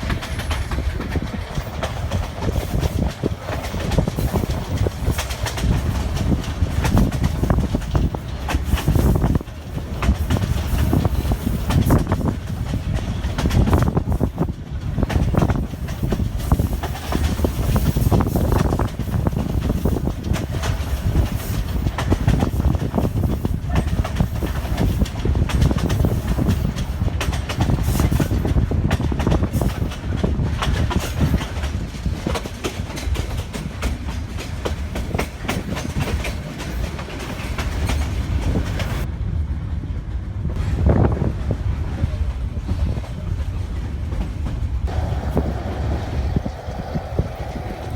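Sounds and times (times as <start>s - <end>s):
train coaches rumbling on track: 0.0s - 47.9s
rattling knocks and wheel clatter: 43.9s - 47.9s.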